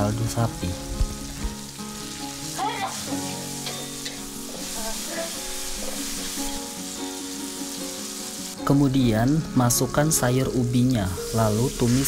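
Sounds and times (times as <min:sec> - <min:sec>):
soft background music: 0:00.0 - 0:12.0
vegetables sizzling in a wok: 0:00.0 - 0:12.0
metal spatula stirring: 0:03.6 - 0:06.4.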